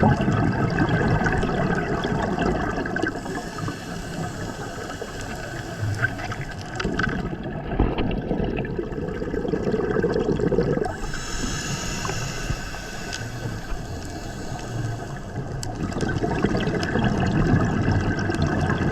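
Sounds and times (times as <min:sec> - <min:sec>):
exhaled bubbles burbling: 0:00.0 - 0:18.9
regulator hiss: 0:03.1 - 0:06.8, 0:10.9 - 0:15.8.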